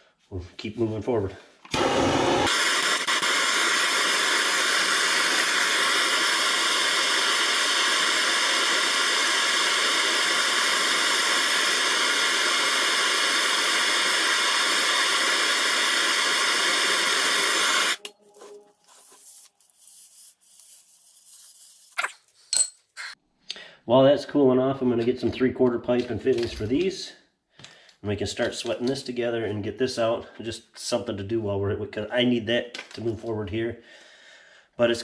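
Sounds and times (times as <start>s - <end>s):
soldering torch hissing: 1.8s - 18.1s.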